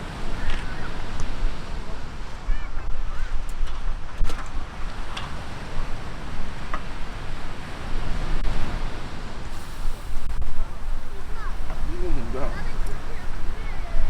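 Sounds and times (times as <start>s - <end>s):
sea surf on a beach: 0.0s - 3.4s, 4.4s - 14.0s
wind buffeting microphone: 0.0s - 14.0s
faint clicks: 9.6s - 14.0s.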